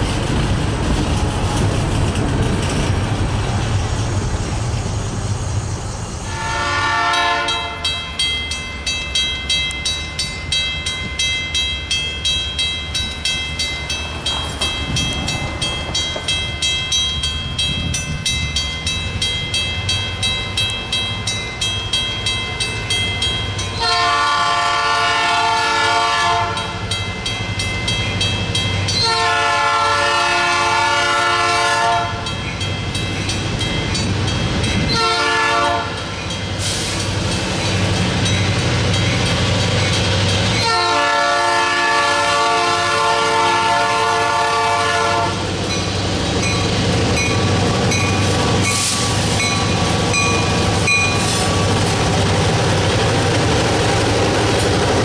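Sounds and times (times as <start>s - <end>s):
freight cars rumbling over rails: 0.0s - 55.0s
locomotive air horn: 6.2s - 8.0s, 23.8s - 26.7s, 29.0s - 32.2s, 34.9s - 36.0s, 40.6s - 45.4s
crossing bell ringing: 6.5s - 44.5s, 45.2s - 55.0s.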